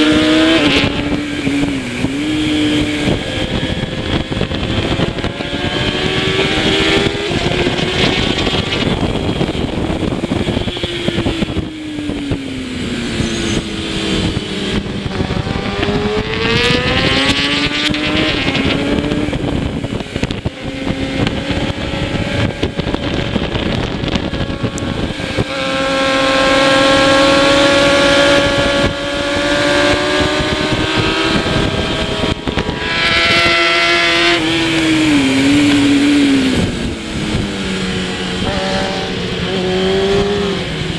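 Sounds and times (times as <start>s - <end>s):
motorcycle engine revving: 0.0s - 40.9s
wind rush: 0.0s - 40.9s.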